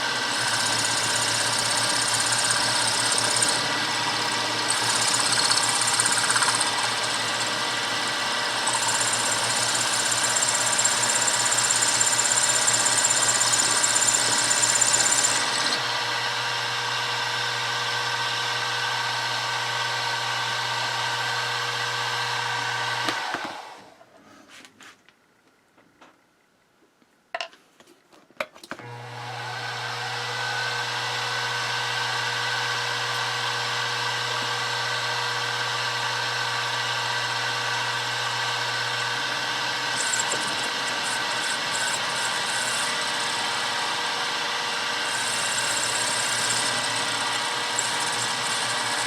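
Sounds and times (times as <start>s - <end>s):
milling machine spindle running: 0.0s - 16.3s, 32.1s - 49.0s.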